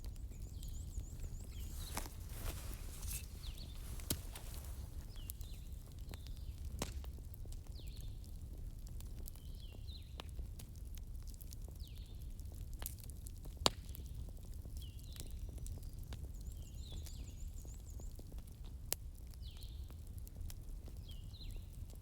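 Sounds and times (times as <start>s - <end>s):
wood fire crackling: 0.0s - 14.6s
sharp pops of fire: 1.1s - 7.2s.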